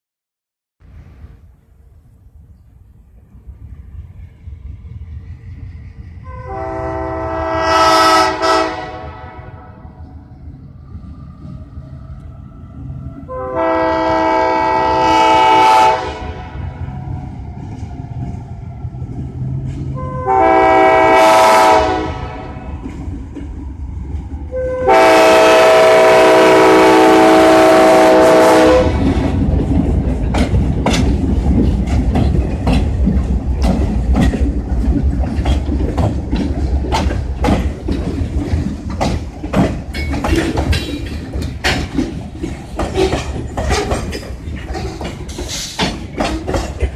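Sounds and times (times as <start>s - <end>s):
locomotives rumbling past: 0.8s - 46.9s
locomotive air horn blasts: 6.2s - 9.8s, 13.3s - 16.6s, 20.0s - 22.7s, 24.5s - 29.1s
wheels clicking over rail joints: 28.9s - 46.9s.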